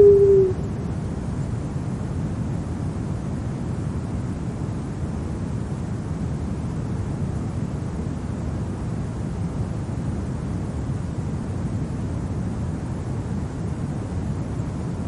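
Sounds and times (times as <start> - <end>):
low wind blowing: 0.0 - 1.4.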